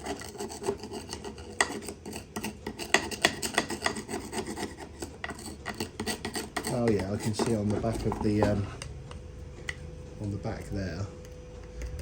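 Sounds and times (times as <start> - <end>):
hand scraping on metal: 0.0 - 8.9.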